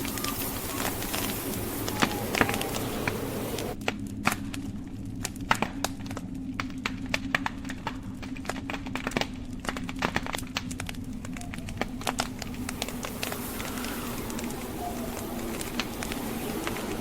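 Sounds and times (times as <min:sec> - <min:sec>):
wind hissing: 0:00.0 - 0:03.8, 0:09.9 - 0:17.0
blizzard wind rumbling: 0:00.0 - 0:17.0
wood fire crackling: 0:00.0 - 0:17.0.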